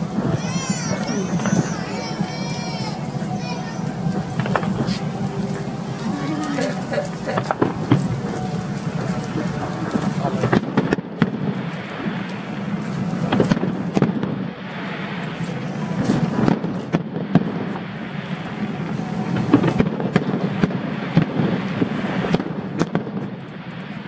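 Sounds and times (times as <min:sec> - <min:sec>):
crowd noise: 0:00.0 - 0:24.0
fireworks bangs and crackling: 0:00.0 - 0:24.0.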